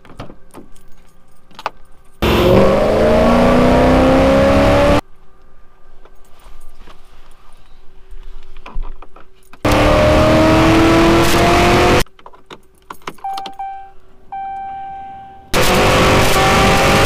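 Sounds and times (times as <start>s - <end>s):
car engine at full throttle: 2.2s - 5.0s, 9.7s - 12.0s, 15.5s - 17.0s
electronic chime tone: 13.2s - 15.6s.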